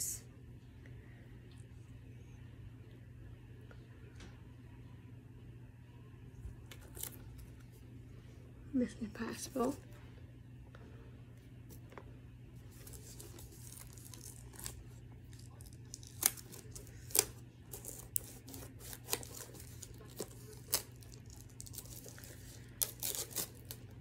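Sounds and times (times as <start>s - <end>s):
low steady hum: 0.0s - 24.0s
plastic wrapping crinkling: 12.6s - 24.0s.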